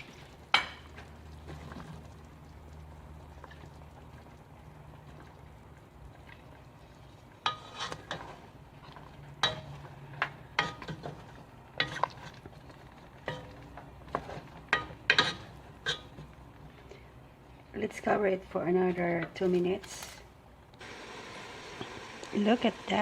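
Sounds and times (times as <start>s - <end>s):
metal utensil clinking on pot: 9.4s - 9.8s, 14.7s - 16.1s.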